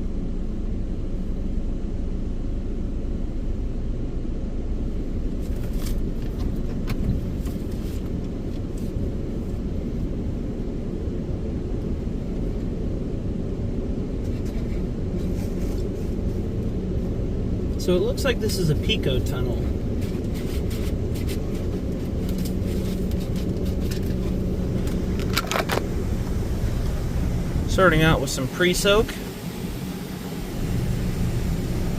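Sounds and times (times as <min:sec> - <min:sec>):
car engine idling: 0:00.0 - 0:31.9.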